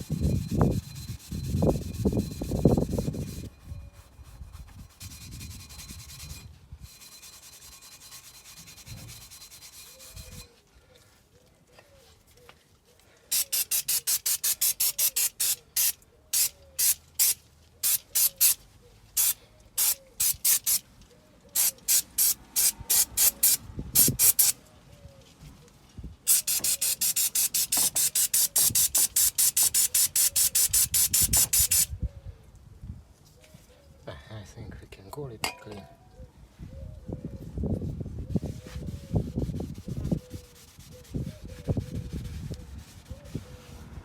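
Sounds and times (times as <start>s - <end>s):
spray bottle hissing squirts: 13.3s - 18.6s, 19.2s - 20.8s, 21.6s - 24.6s, 26.3s - 31.9s.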